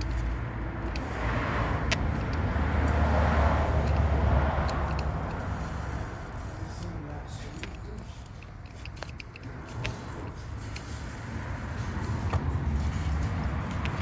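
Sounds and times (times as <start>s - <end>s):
vehicle passing by: 0.0s - 7.5s, 9.0s - 14.0s.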